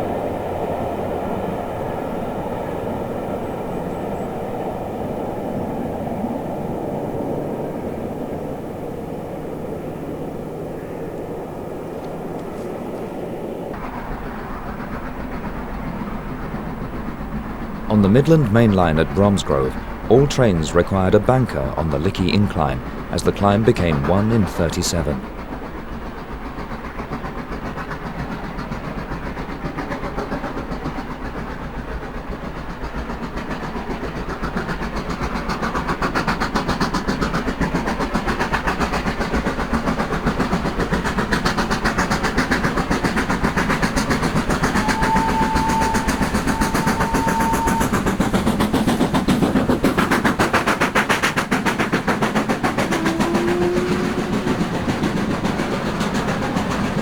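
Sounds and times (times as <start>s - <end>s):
steam locomotive exhaust beating: 0.0s - 57.0s
train whistle notes: 44.7s - 48.1s, 52.9s - 54.7s.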